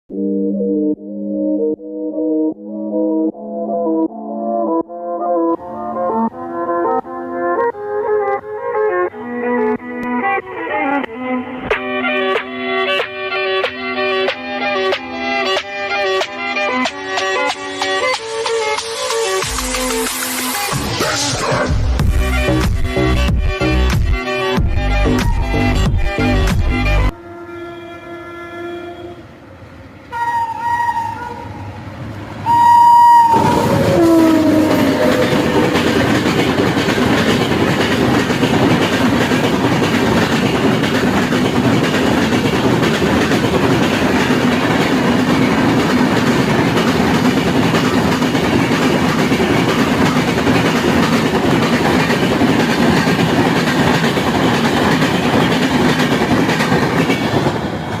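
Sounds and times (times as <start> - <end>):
train horn blasts: 27.0 - 31.8, 32.4 - 35.8
train coaches rumbling by: 28.0 - 58.0.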